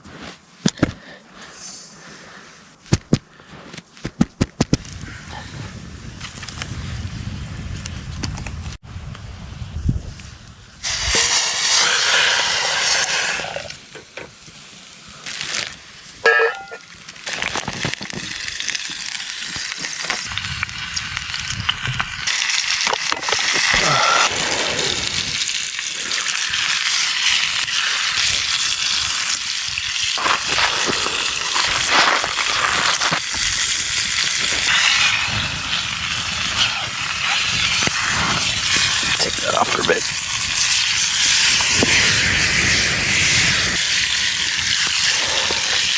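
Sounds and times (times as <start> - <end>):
steak sizzling: 10.8 - 13.8, 15.3 - 45.9.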